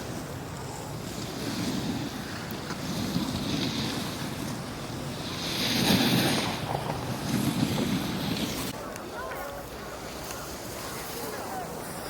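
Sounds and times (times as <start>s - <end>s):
wind rushing over microphone: 0.0s - 8.9s
skis scraping on snow: 0.0s - 12.0s.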